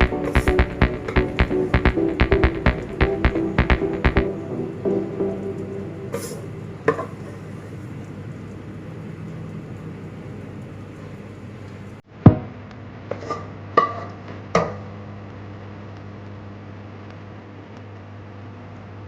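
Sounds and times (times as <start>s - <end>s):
utensil knocking: 0.0s - 4.6s
steady low hum: 0.0s - 12.0s.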